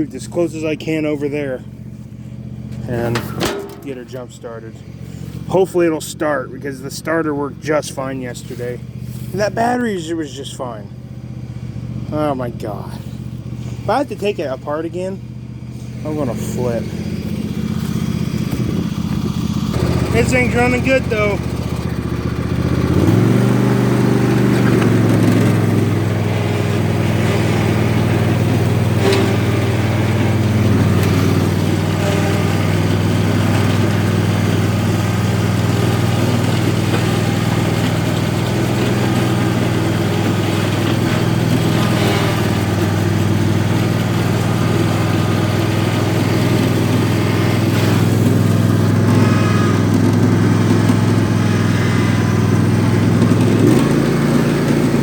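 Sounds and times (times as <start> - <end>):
riding mower engine running: 0.0 - 55.0.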